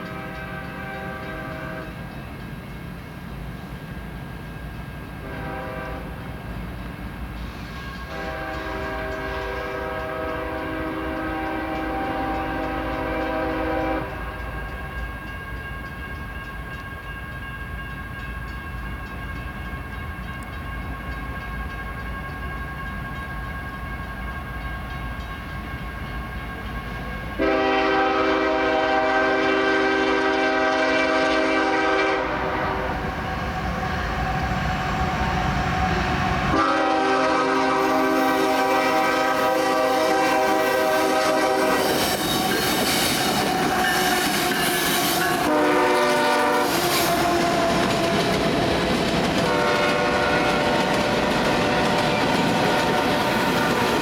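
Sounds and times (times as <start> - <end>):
locomotive air horn blasts: 0.0 - 2.0, 5.2 - 6.2, 8.0 - 14.6, 27.4 - 33.1, 36.5 - 42.6, 43.3 - 48.5, 49.4 - 54.0
freight train rumble: 0.0 - 54.0.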